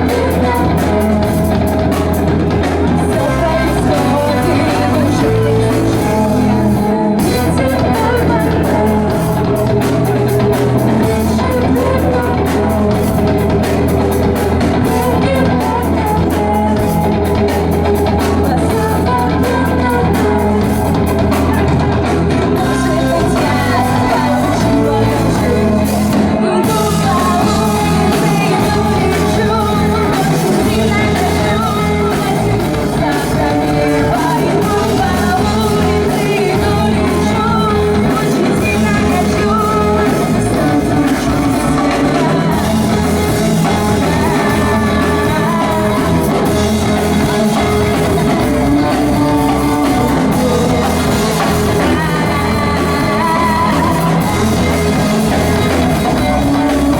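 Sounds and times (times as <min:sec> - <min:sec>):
live rock band playing: 0:00.0 - 0:56.9
person singing: 0:00.0 - 0:56.9.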